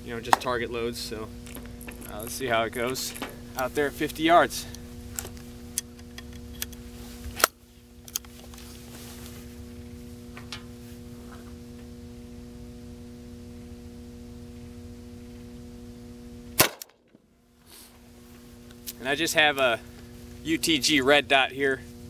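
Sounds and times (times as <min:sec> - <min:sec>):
loud gunshot: 0:16.6 - 0:17.0.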